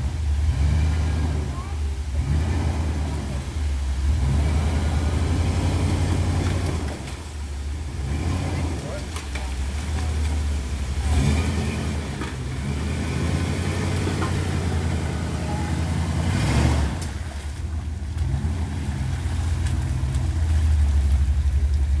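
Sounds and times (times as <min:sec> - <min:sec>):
off-road engine revving: 0:00.0 - 0:22.0.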